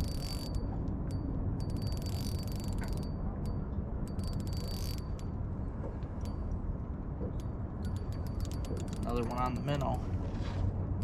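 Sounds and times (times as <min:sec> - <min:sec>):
fishing reel clicking rapidly: 0:00.0 - 0:00.6, 0:01.7 - 0:03.1, 0:04.1 - 0:05.2.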